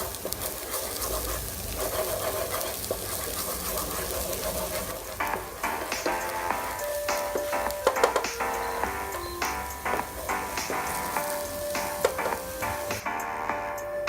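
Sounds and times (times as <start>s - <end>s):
food sizzling in frying pan: 0.0s - 13.8s
music: 5.2s - 14.0s.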